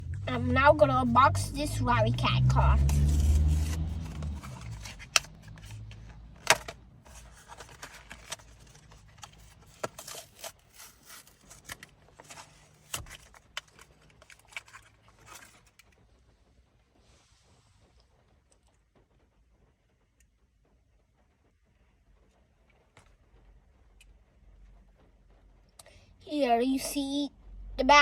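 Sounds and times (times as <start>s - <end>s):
plastic package being opened: 2.8s - 16.0s.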